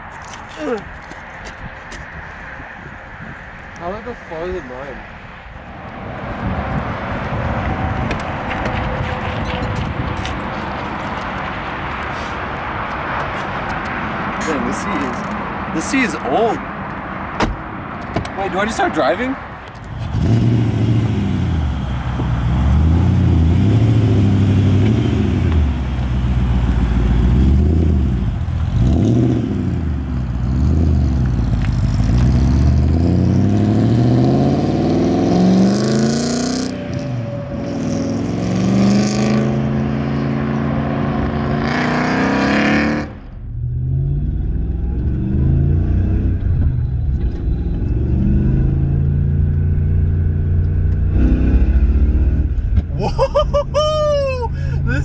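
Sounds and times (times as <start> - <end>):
car engine accelerating hard: 18.0 - 52.9.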